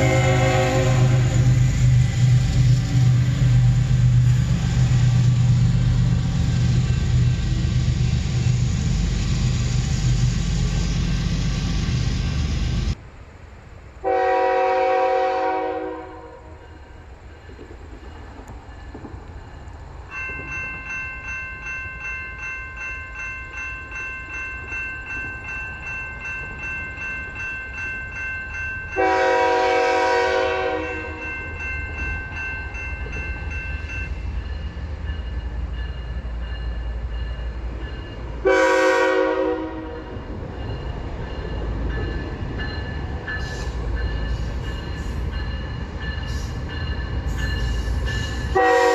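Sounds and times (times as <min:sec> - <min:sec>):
locomotive horn blasts: 0:00.0 - 0:01.6, 0:14.0 - 0:16.6, 0:29.0 - 0:31.2, 0:38.4 - 0:40.1, 0:48.5 - 0:48.9
train rumble: 0:00.0 - 0:48.9.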